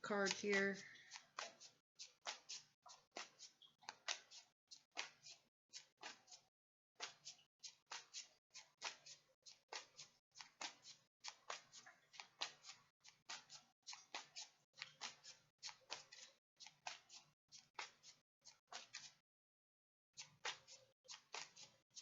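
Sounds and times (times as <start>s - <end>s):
cards being shuffled: 0.3s - 6.4s, 7.0s - 18.1s, 18.7s - 19.2s, 20.2s - 21.8s.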